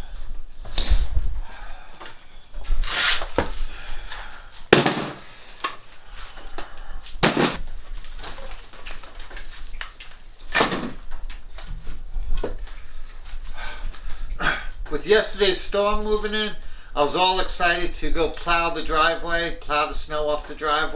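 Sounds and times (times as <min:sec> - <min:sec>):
firewood knocking and clattering: 0:04.7 - 0:05.8, 0:07.2 - 0:12.8.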